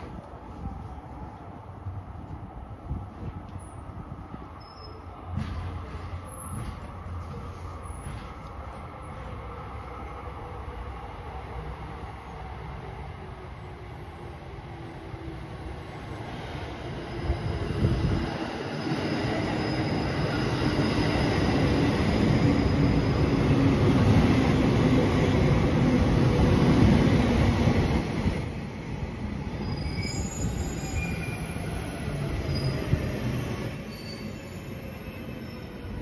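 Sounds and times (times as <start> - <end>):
train wheels rumbling on rail: 0.0 - 36.0
brake squeals: 29.6 - 35.7.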